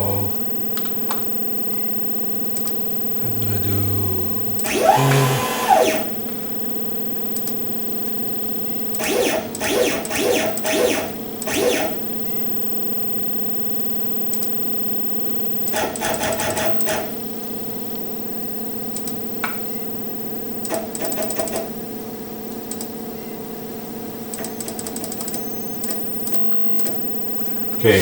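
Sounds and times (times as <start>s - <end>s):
electrical hum: 0.0s - 21.0s, 21.6s - 28.0s
stepper motors rapid ticking: 4.6s - 6.2s, 9.0s - 12.1s.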